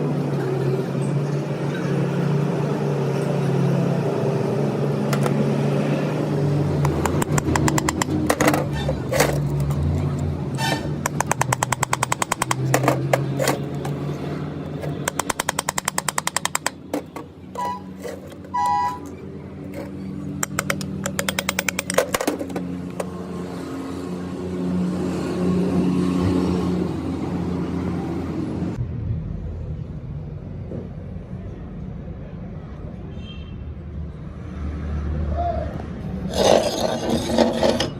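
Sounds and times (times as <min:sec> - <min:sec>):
workshop machinery humming: 0:00.1 - 0:23.5
rapid clicking: 0:06.8 - 0:08.5, 0:11.0 - 0:13.5, 0:14.8 - 0:16.9.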